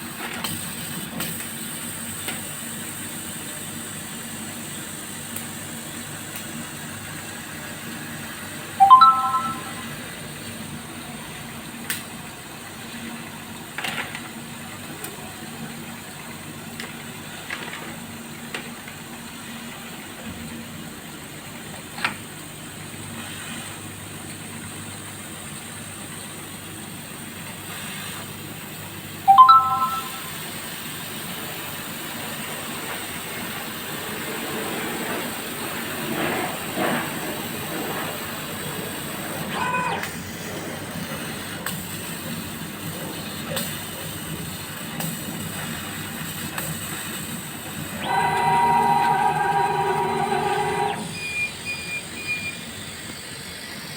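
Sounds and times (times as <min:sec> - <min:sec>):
three-note electronic beep: 0:08.8 - 0:10.0, 0:29.3 - 0:30.4.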